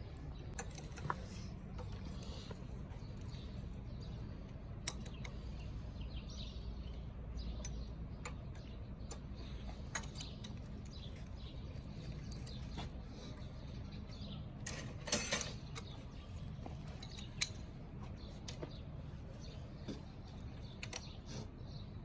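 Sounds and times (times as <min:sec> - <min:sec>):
steady low hum: 0:00.0 - 0:22.0
clicks and taps on engine parts: 0:04.0 - 0:05.6, 0:06.8 - 0:13.0, 0:14.6 - 0:19.0, 0:19.8 - 0:21.8.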